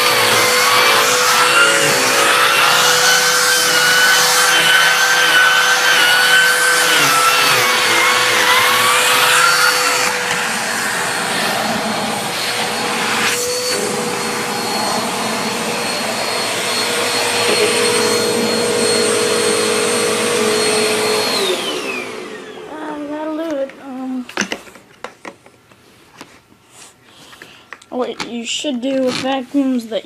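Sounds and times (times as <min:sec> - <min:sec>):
vacuum cleaner motor whine: 0:00.0 - 0:23.7.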